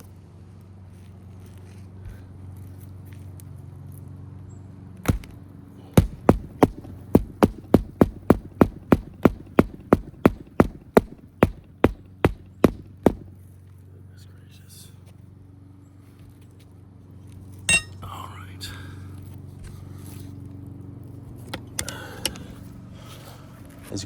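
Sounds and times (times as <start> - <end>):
steady low hum: 5.0 - 15.7, 17.2 - 23.8
hatchet hammering nails: 5.1 - 5.3, 5.9 - 13.3, 17.7 - 18.0.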